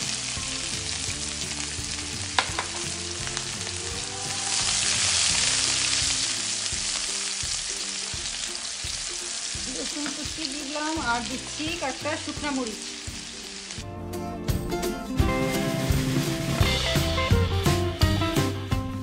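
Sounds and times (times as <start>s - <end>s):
garlic sizzling in hot oil: 0.0s - 13.8s, 15.4s - 18.5s.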